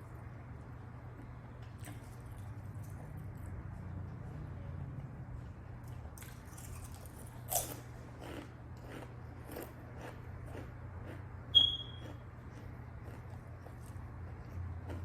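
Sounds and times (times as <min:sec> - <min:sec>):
wet chewing of sandwich: 0:01.0 - 0:15.0
high-pitched squeak: 0:11.6 - 0:12.1.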